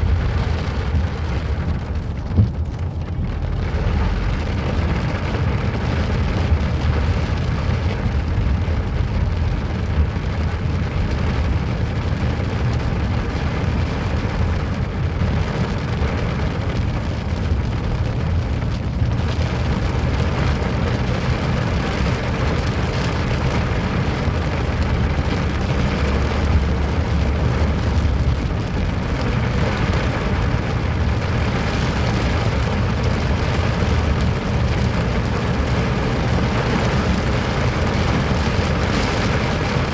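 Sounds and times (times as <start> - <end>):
loud low rumble: 0.0 - 5.1
rain falling: 0.0 - 39.9.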